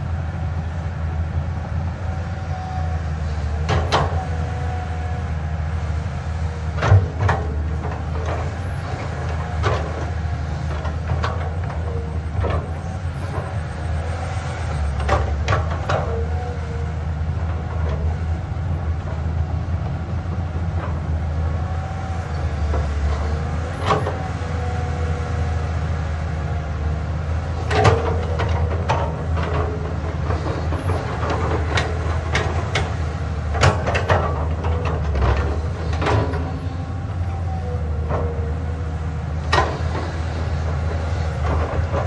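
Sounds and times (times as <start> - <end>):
excavator diesel engine running: 0.0 - 42.0
metal clanks and squeaks: 10.8 - 16.6, 27.7 - 33.0.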